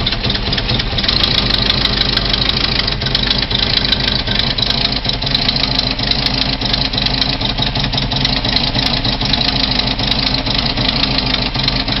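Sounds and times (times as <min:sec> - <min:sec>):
car engine idling: 0:00.0 - 0:12.0
rapid ticking knocking: 0:00.0 - 0:12.0.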